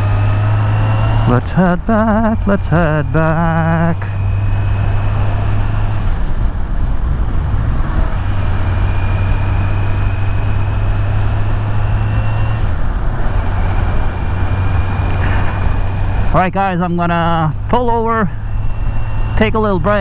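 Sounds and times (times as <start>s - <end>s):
motorcycle engine running: 0.0s - 20.0s
wind rushing over microphone: 0.0s - 20.0s.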